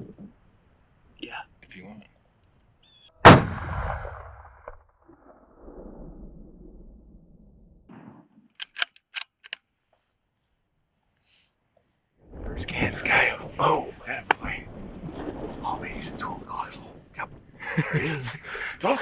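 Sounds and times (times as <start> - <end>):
rifle shot: 3.2 - 4.5
sharp clicks: 8.6 - 9.6.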